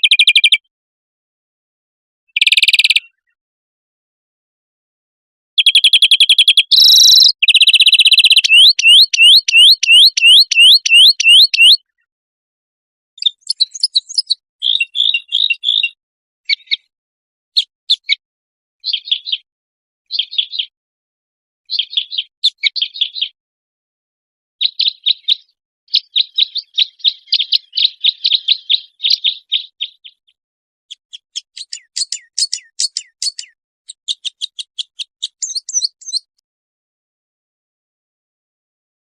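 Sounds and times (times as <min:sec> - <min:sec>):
bird chirps and clicks: 0:00.0 - 0:00.7, 0:02.3 - 0:03.4, 0:05.6 - 0:12.1, 0:13.2 - 0:16.9, 0:17.6 - 0:18.2, 0:18.8 - 0:19.5, 0:20.1 - 0:20.7, 0:21.7 - 0:23.4, 0:24.6 - 0:36.4
songbird trilling and whistling: 0:00.0 - 0:00.7, 0:02.3 - 0:03.4, 0:05.6 - 0:12.0, 0:13.2 - 0:16.9, 0:17.6 - 0:18.2, 0:18.8 - 0:19.4, 0:20.1 - 0:20.7, 0:21.7 - 0:23.4, 0:24.6 - 0:36.3.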